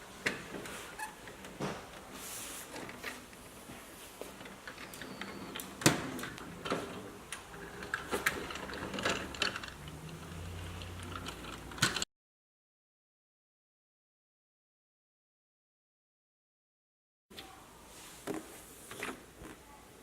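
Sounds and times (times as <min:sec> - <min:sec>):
plastic toy vehicles clicking: 0:04.4 - 0:12.1.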